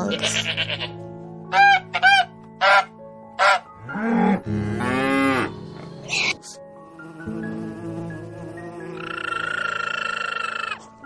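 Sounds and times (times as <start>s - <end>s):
soft background music: 0.0s - 11.0s
farm animal calls: 9.0s - 10.9s.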